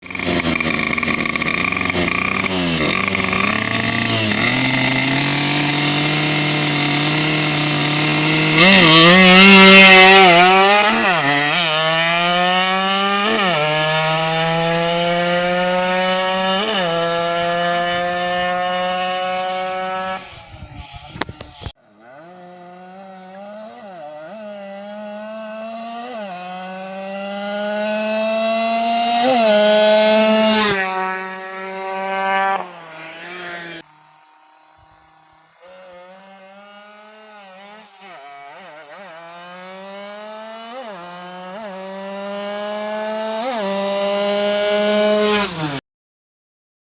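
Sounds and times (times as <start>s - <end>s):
two-stroke moped engine revving: 0.0s - 20.4s, 21.2s - 45.8s.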